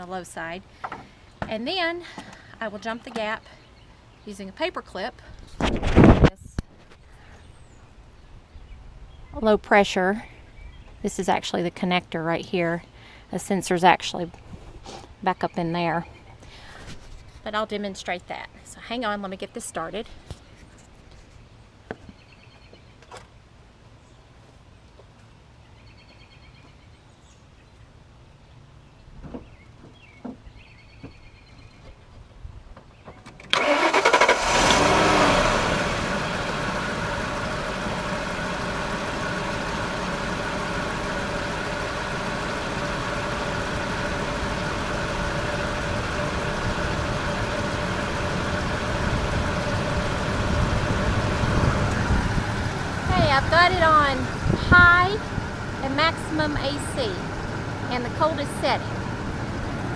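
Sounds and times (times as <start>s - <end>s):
truck engine cranking and starting: 33.4s - 59.9s
engine idling: 33.5s - 59.9s.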